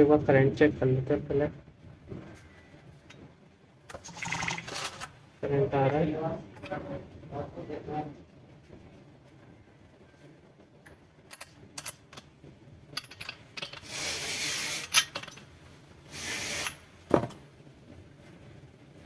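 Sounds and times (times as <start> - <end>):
metal tools clinking: 12.9 - 14.0, 14.7 - 15.5.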